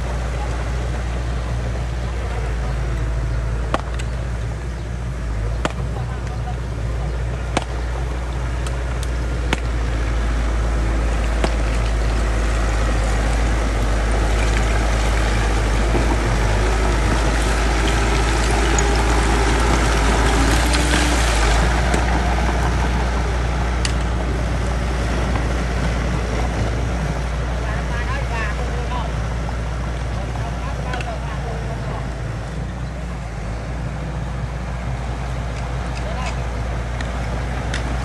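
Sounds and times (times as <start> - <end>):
bulldozer diesel engine rumbling: 0.0 - 38.0
clicks and knocks of stones: 11.3 - 12.2, 14.2 - 22.2.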